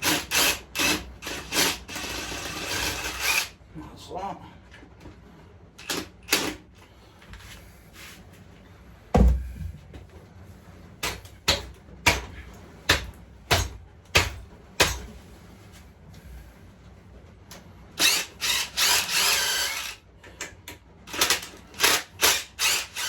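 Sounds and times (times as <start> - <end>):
heavy thump: 9.1 - 10.0
sharp knocks: 9.2 - 9.8.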